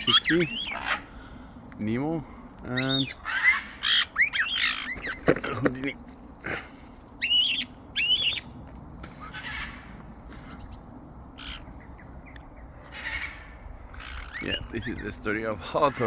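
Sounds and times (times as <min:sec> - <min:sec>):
parrots squawking: 0:00.0 - 0:01.4, 0:02.7 - 0:05.2, 0:07.2 - 0:08.5, 0:09.2 - 0:10.1, 0:11.4 - 0:11.8, 0:12.7 - 0:14.7.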